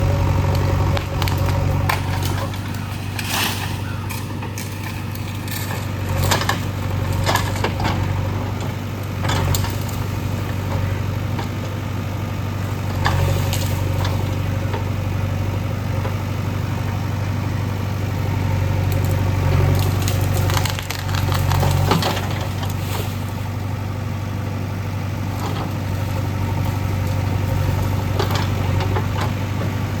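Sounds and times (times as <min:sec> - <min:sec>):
backhoe diesel engine running: 0:00.0 - 0:30.0
cracking and crunching knocks: 0:00.5 - 0:10.5, 0:18.7 - 0:23.4.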